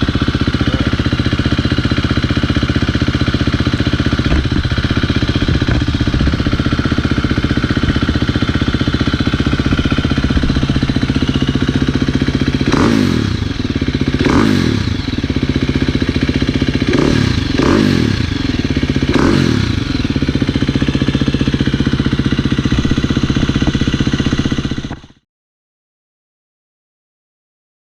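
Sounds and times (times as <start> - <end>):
motorcycle engine idling: 0.0 - 25.2.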